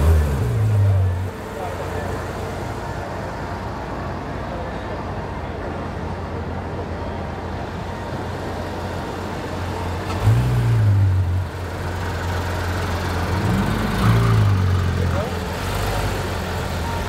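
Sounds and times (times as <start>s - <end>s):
car engine revving: 0.0s - 1.4s
car engine idling: 11.3s - 17.0s.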